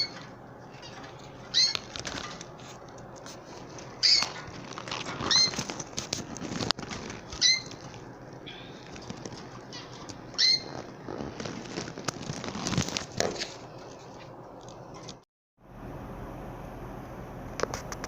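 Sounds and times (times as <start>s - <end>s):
canaries chirping: 0.0s - 2.4s, 3.8s - 5.8s, 7.0s - 11.8s
wing flutters: 0.0s - 14.1s
rustling and clicks: 0.1s - 15.2s.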